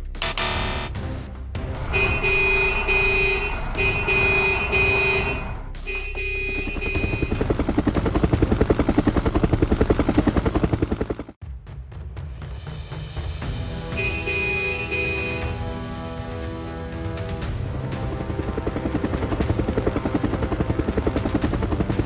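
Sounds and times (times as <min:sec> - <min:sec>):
electronic warning beep: 0:00.2 - 0:00.9, 0:01.9 - 0:07.4
fast pulsing motor: 0:02.0 - 0:11.3, 0:17.5 - 0:22.0.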